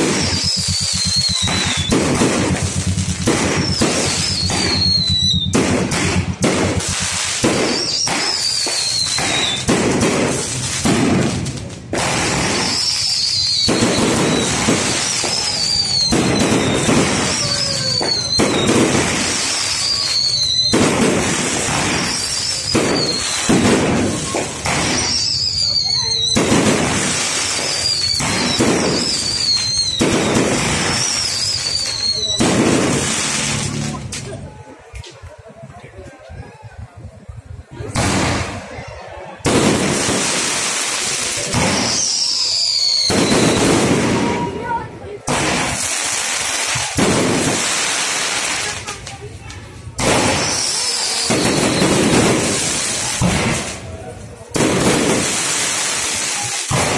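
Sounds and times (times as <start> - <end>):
fireworks bangs and crackles: 0.0 - 56.9
high falling whistle: 3.6 - 5.5, 12.6 - 18.7, 19.6 - 20.7, 27.6 - 30.0, 30.9 - 32.4.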